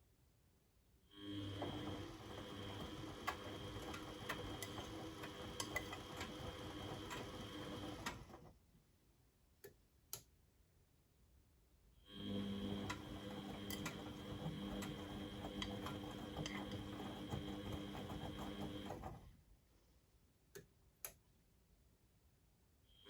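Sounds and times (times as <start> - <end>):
washing machine motor whine: 1.2 - 8.5, 12.1 - 19.4.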